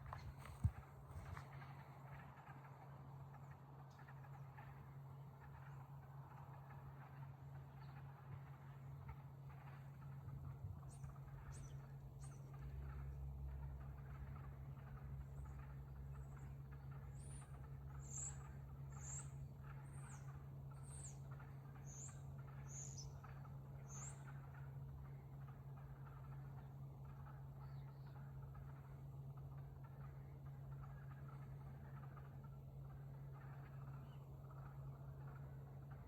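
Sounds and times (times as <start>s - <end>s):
steady low hum: 0.0s - 36.0s
bird chirping: 10.2s - 29.0s.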